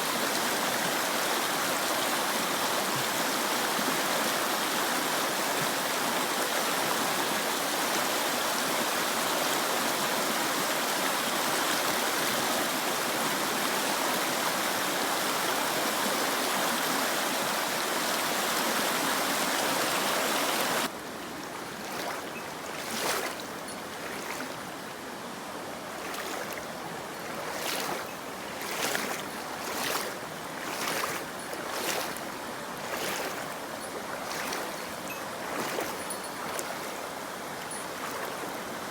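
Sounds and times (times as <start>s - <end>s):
mountain stream rushing: 0.0s - 38.9s
quiet flowing water: 0.0s - 38.9s.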